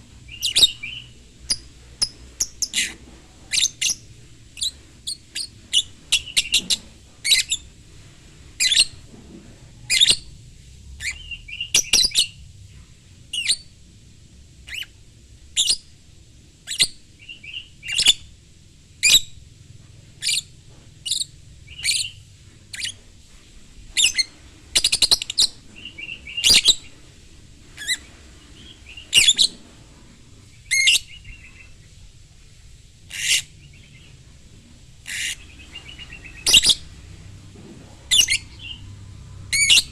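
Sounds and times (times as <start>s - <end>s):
lovebird chirping and trilling: 0.3s - 4.0s, 4.6s - 7.7s, 8.6s - 9.0s, 9.9s - 10.3s, 11.0s - 12.4s, 13.3s - 13.6s, 14.7s - 14.9s, 15.6s - 15.9s, 16.7s - 18.2s, 19.0s - 19.3s, 20.2s - 23.0s, 23.9s - 26.9s, 27.8s - 29.6s, 30.6s - 31.8s, 33.1s - 34.2s, 35.0s - 36.9s, 38.1s - 38.9s, 39.5s - 39.9s.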